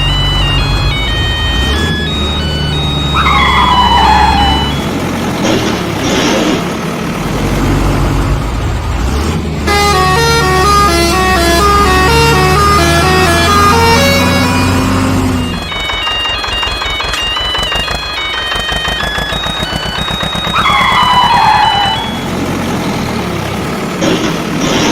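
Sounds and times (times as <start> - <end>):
falling pitched tone: 0.0 - 6.3, 9.7 - 23.1
vehicle sound effects: 0.0 - 24.9.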